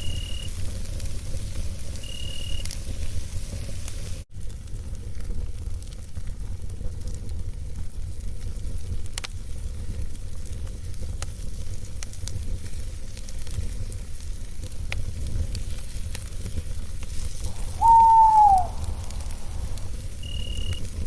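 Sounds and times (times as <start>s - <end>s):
campfire crackling: 0.0s - 21.0s
owl hooting: 17.5s - 20.7s.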